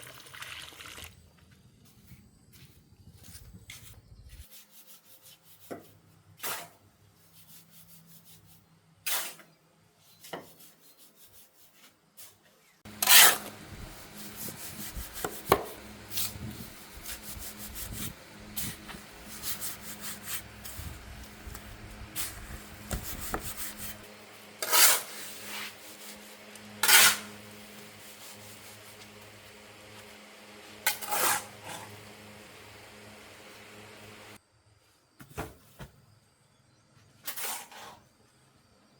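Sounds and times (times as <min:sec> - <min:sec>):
sharp scrapes or knocks: 0:12.9 - 0:20.9, 0:22.2 - 0:29.1, 0:30.8 - 0:32.1.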